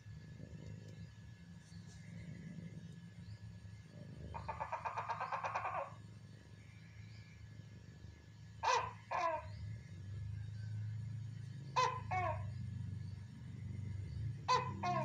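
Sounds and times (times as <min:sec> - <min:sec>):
cat chattering chirps: 0:04.0 - 0:06.0.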